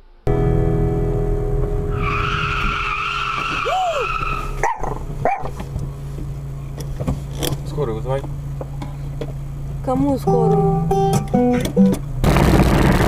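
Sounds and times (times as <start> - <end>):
car engine running: 0.0 - 13.0
tyres skidding and screeching: 1.8 - 9.2.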